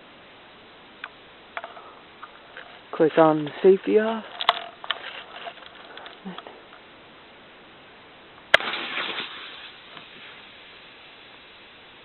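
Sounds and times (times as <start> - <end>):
sharp pop: 8.5 - 10.4.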